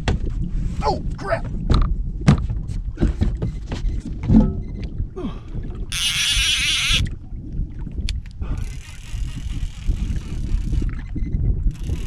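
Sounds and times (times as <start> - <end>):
knocks and thumps in a boat: 0.0 - 8.5
fishing reel drag buzzing: 5.9 - 7.1, 8.6 - 11.0, 11.7 - 12.0.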